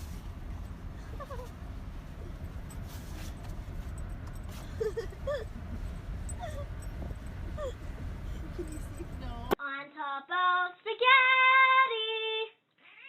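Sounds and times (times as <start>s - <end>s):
steady low rumble: 0.0s - 9.6s
dog whimpering: 1.0s - 1.6s, 4.6s - 9.2s.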